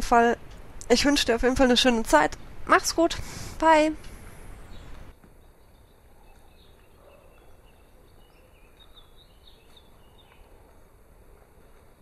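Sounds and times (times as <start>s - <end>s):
faint high bird chirps: 4.6s - 10.8s.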